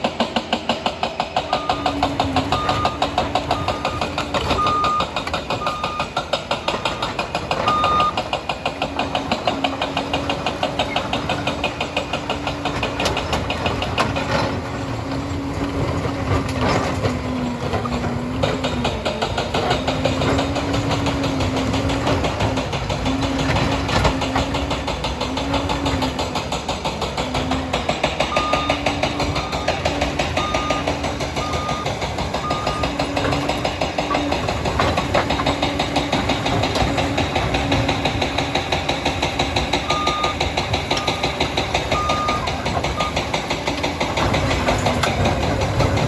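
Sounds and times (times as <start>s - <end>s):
diesel engine clattering: 0.0s - 46.0s
reversing alarm beeps: 1.5s - 8.2s, 28.3s - 33.0s, 39.8s - 43.2s.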